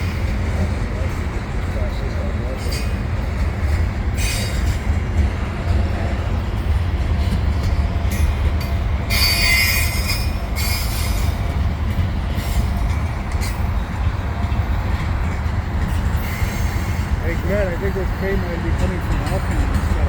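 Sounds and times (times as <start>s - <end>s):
steel wheels rumbling on rail: 0.0s - 20.0s
high-pitched wheel squeal: 9.1s - 11.3s.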